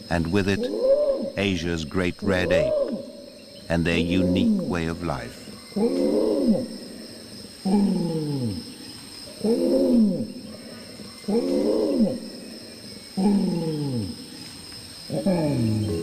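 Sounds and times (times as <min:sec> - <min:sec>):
orangutan long call: 0:00.2 - 0:03.1, 0:03.8 - 0:06.7, 0:07.6 - 0:08.6, 0:09.3 - 0:12.3, 0:13.1 - 0:14.2, 0:15.1 - 0:16.0.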